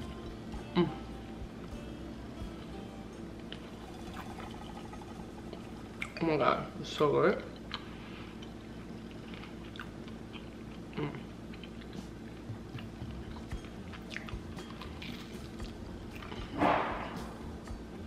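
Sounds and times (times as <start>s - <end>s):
person chewing pastry: 7.5s - 16.6s.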